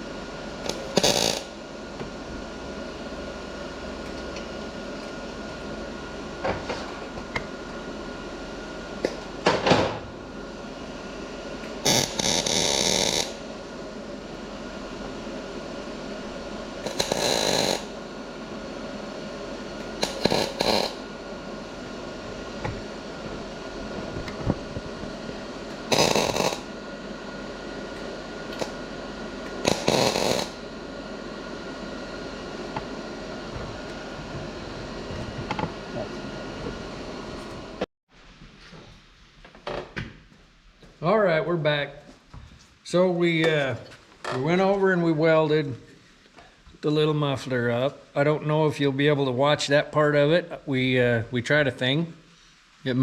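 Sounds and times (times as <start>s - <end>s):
welder crackling: 0.0s - 9.7s, 10.6s - 37.9s
steady welder hum: 0.0s - 53.0s.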